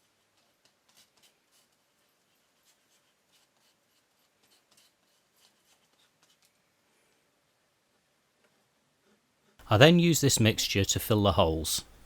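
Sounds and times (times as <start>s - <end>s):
faint scrapes and ticks: 0.0s - 9.6s.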